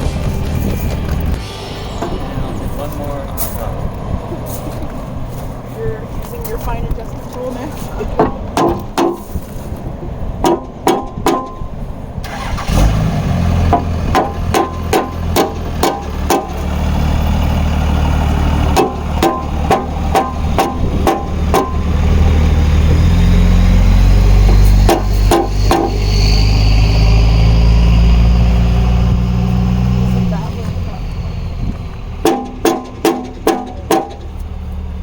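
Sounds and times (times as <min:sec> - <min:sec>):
vehicle engine idling: 0:10.6 - 0:35.0.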